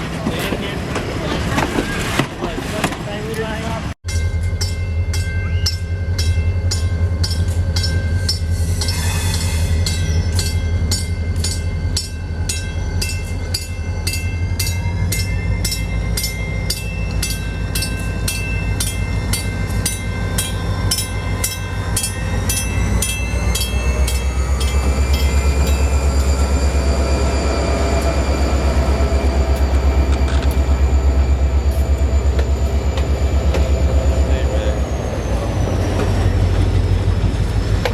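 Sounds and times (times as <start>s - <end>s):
train wheels clicking on rail joints: 4.2s - 37.9s.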